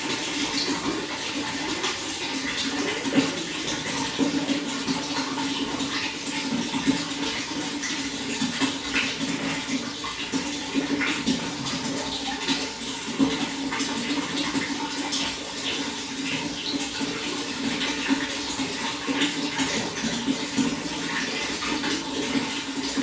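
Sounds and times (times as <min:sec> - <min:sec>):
running water splashing: 0:00.0 - 0:23.0.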